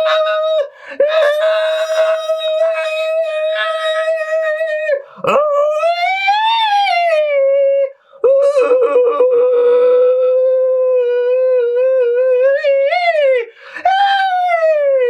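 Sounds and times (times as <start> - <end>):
short breath: 0.7 - 1.0, 5.0 - 5.3, 8.0 - 8.2, 13.5 - 13.8.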